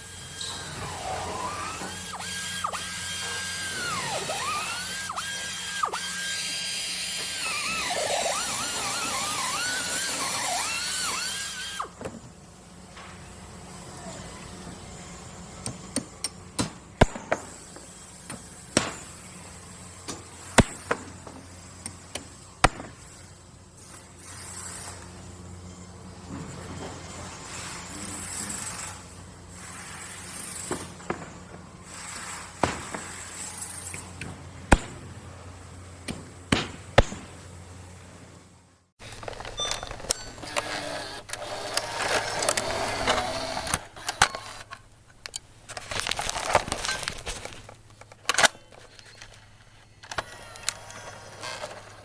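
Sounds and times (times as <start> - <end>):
power drill whining: 0.0 - 12.0, 39.0 - 52.0.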